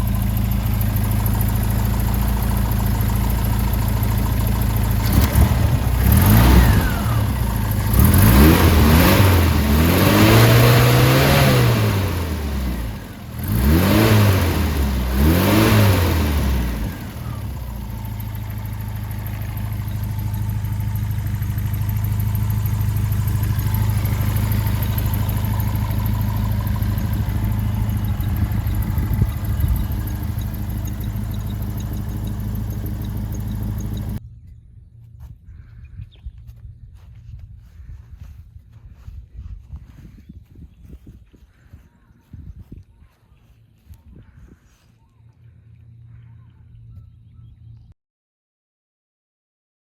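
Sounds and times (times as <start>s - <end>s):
car engine idling: 0.0s - 34.2s
car engine revving: 0.0s - 34.2s.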